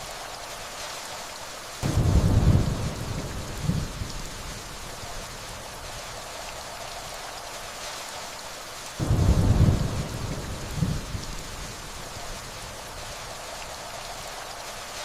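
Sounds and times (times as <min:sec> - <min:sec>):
steady rainfall: 0:00.0 - 0:15.0
distant thunder rumble: 0:01.8 - 0:06.0, 0:09.0 - 0:13.6.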